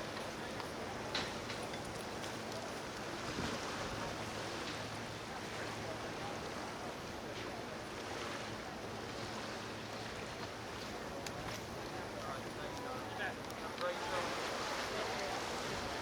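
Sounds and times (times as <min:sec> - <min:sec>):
outdoor noise wash: 0:00.0 - 0:16.0.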